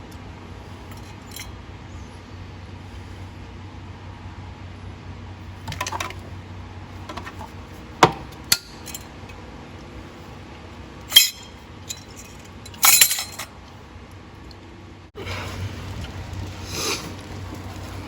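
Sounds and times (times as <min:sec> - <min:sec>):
low steady hum: 0:00.0 - 0:18.0
light metallic clinks: 0:00.8 - 0:01.6, 0:08.5 - 0:09.2, 0:11.1 - 0:13.5
sharp metal clanks: 0:08.0 - 0:09.2, 0:11.0 - 0:13.5.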